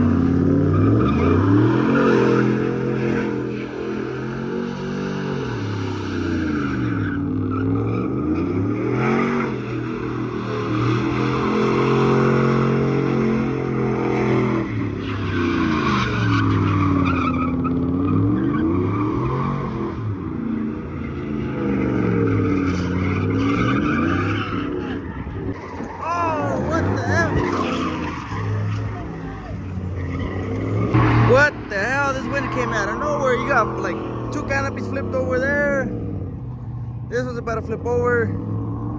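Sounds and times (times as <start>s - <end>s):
spinning tires squealing: 0.0s - 36.1s
truck engine revving high: 0.0s - 38.9s.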